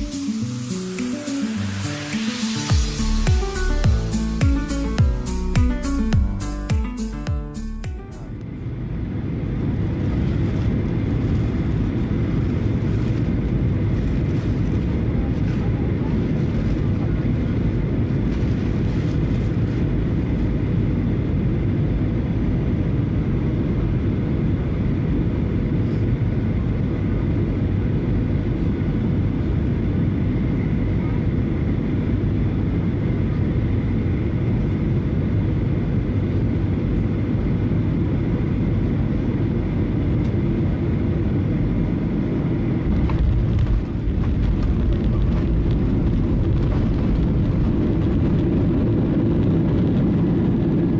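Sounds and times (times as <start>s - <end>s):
airflow: 0.0s - 8.4s
jet engine cabin rumble: 8.4s - 50.9s.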